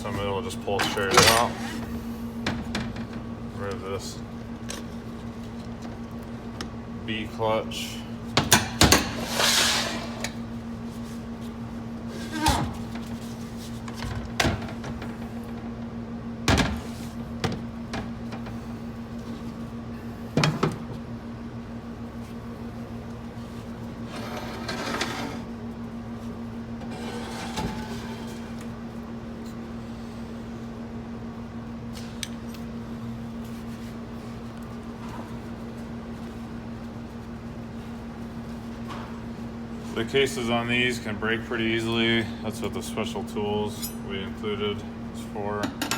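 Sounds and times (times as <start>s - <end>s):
steady low hum: 0.0s - 45.9s
metal scraping and sliding: 9.1s - 10.4s, 24.1s - 25.5s, 26.8s - 28.5s.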